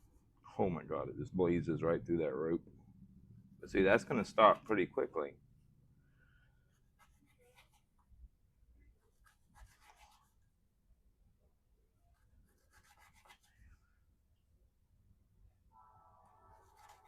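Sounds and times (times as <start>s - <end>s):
low hum: 0.0s - 6.8s.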